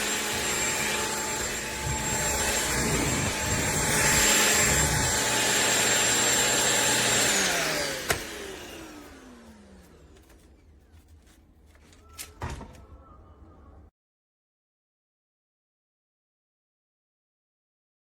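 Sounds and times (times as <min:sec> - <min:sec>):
vacuum motor winding down: 0:00.0 - 0:10.4
stick vacuum whining: 0:00.0 - 0:13.0.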